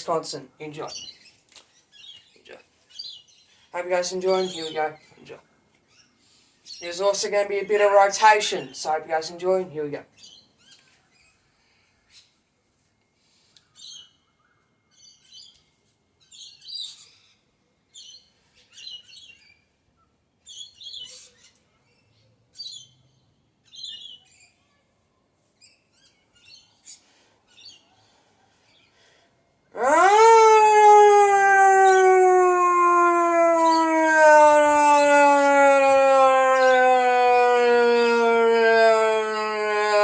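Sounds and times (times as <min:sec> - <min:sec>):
birds chirping in bursts: 0:00.0 - 0:11.4, 0:16.2 - 0:24.6, 0:29.8 - 0:40.0.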